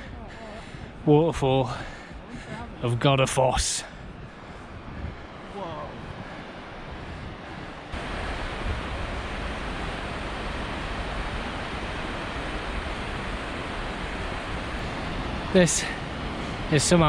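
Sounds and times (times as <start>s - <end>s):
waterfall rushing: 8.0s - 17.0s.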